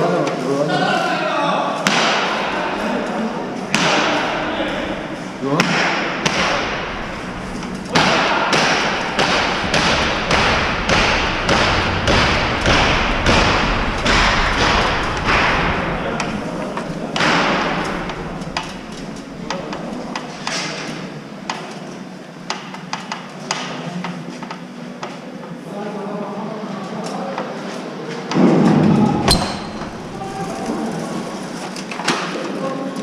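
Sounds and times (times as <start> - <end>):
heavy ringing knocks: 3.4 - 20.9.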